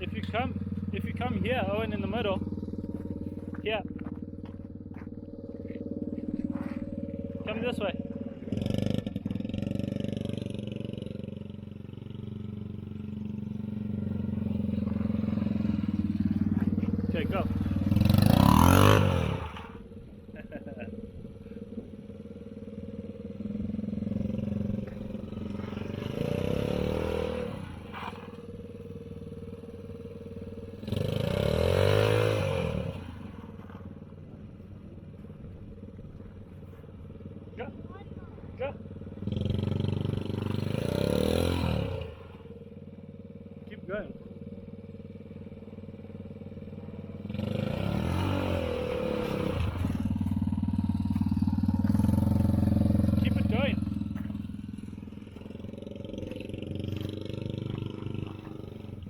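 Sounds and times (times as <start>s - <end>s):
small engine revving: 0.0s - 22.0s, 22.7s - 34.1s, 36.1s - 59.0s.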